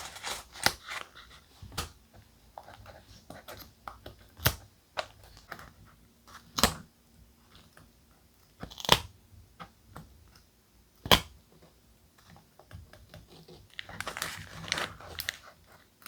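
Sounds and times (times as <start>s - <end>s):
thick paper crunching: 0.0s - 1.4s, 13.8s - 15.5s
paper rustling: 0.0s - 2.0s, 13.7s - 15.6s.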